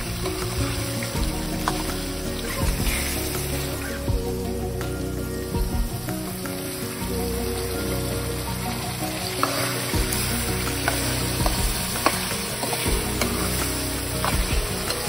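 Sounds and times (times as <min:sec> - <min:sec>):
food sizzling in a pan: 0:06.6 - 0:15.0.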